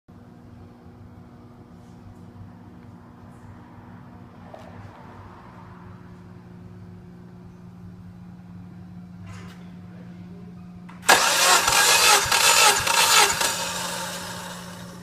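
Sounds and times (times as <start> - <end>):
car engine cranking and starting: 11.0 - 15.0.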